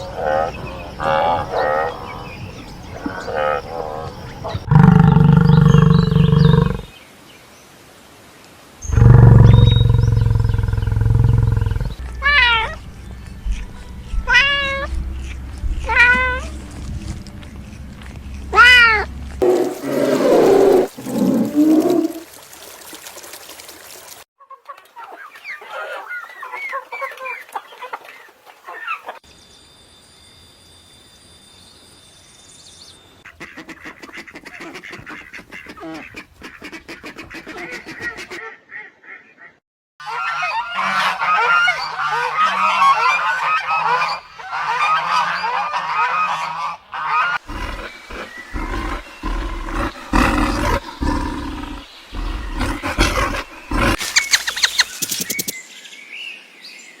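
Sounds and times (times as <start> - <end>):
flock of fowl honking: 40.0 - 47.4.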